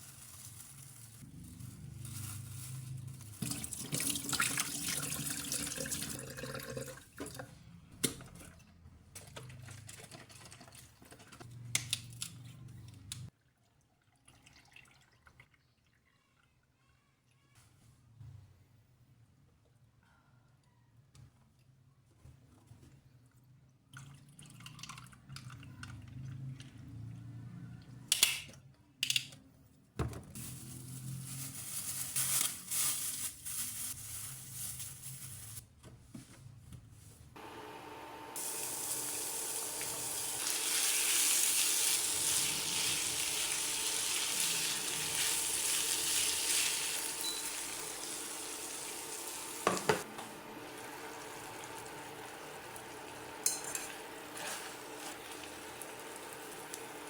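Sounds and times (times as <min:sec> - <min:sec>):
cooking hiss: 0:37.4 - 0:57.0.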